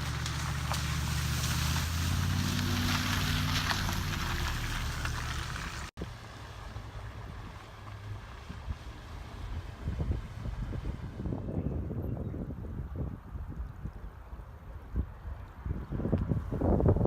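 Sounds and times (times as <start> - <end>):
hiss of rain and water: 0.0 - 9.7
vehicle engine running: 0.0 - 10.9
wind and water hiss: 0.0 - 11.5.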